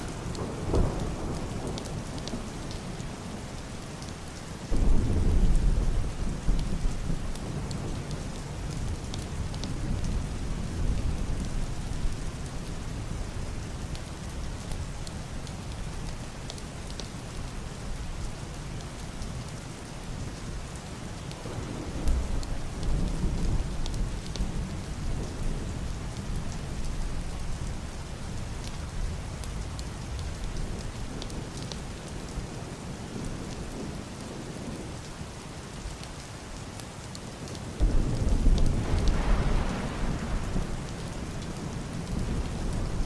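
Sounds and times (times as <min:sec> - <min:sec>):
heavy rain on roof and window: 0:00.0 - 0:43.0
raindrops ticking sharply: 0:37.5 - 0:43.0
distant thunder rolling: 0:37.8 - 0:43.0.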